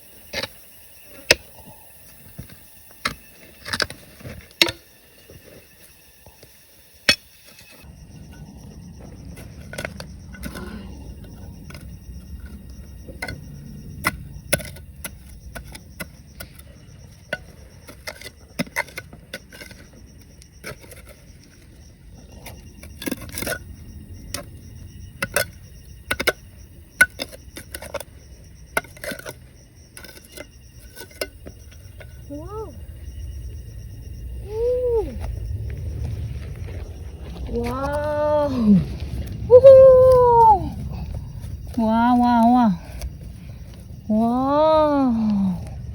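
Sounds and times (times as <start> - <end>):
stones and digging tools clicking: 0.2 - 34.0
low steady rumble: 7.8 - 45.9.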